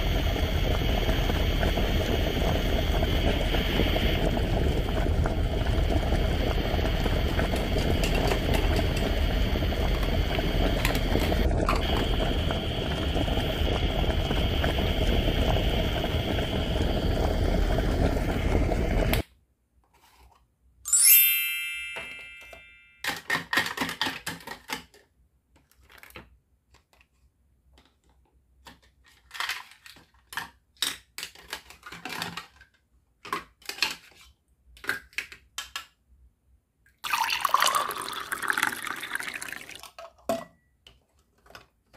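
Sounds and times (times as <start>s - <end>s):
ringing ding: 20.9s - 23.0s
plastic toy cookware clicks: 23.0s - 25.1s, 28.6s - 36.0s.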